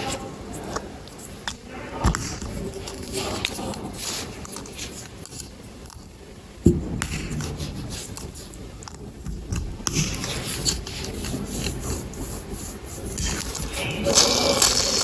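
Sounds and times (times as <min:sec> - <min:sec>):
plastic bricks clicking and rustling: 0:13.1 - 0:15.0.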